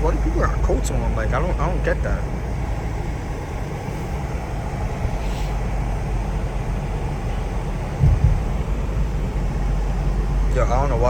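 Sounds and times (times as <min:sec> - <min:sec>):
car interior driving noise: 0:00.0 - 0:11.0
low thump: 0:08.0 - 0:08.8.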